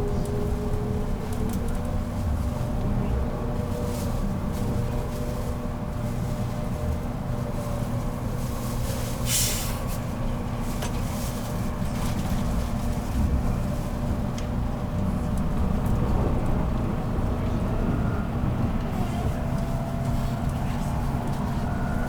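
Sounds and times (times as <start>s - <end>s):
train wheels rumbling on rails: 0.0s - 22.0s
faint traction motor whine: 13.4s - 22.0s.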